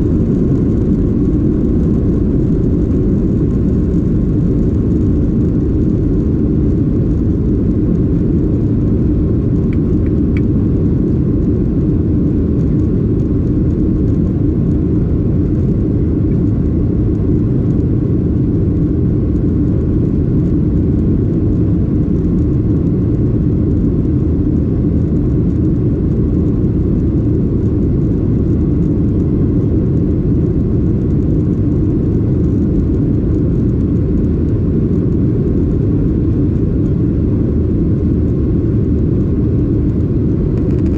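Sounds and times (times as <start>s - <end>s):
faint steady whine: 0.0s - 40.9s
jet engines droning: 0.0s - 40.9s.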